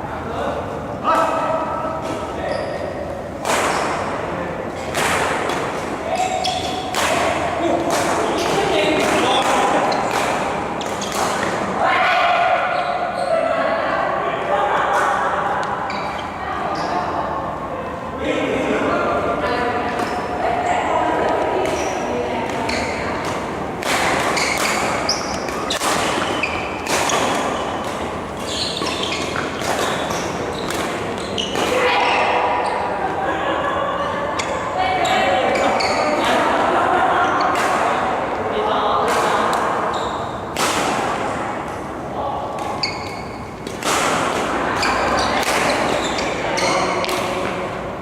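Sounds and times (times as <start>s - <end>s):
shoes squeaking on court floor: 2.1s - 3.1s, 6.1s - 7.0s, 9.8s - 11.6s, 15.9s - 17.1s, 21.6s - 23.5s, 24.1s - 33.0s, 34.4s - 36.2s, 39.8s - 40.5s, 42.6s - 43.8s, 44.6s - 47.4s
racket hitting shuttlecock: 3.4s - 4.2s, 4.8s - 11.8s, 21.2s - 32.8s, 37.4s - 37.9s, 39.0s - 39.8s, 40.5s - 41.9s, 42.5s - 47.7s
shuttlecock hits: 4.9s - 11.6s.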